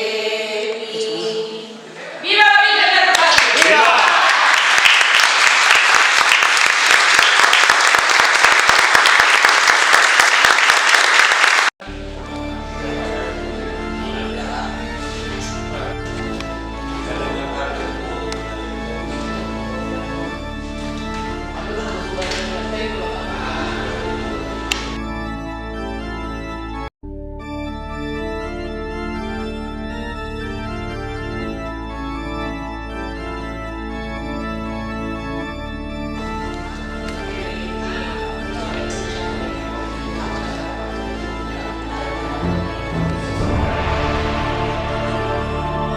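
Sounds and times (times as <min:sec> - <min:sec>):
crowd applauding: 0:03.1 - 0:25.0, 0:36.4 - 0:45.9
instrumental music: 0:11.8 - 0:45.9
organ chords over low drone: 0:11.8 - 0:45.9.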